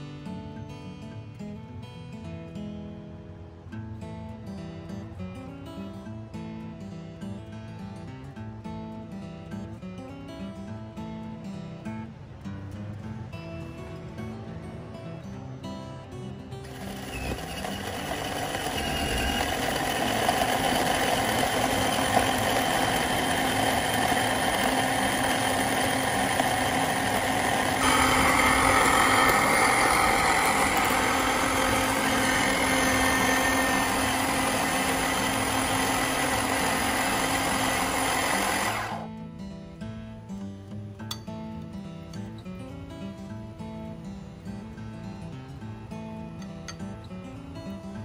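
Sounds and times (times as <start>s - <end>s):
electric food chopper running: 16.6s - 39.1s.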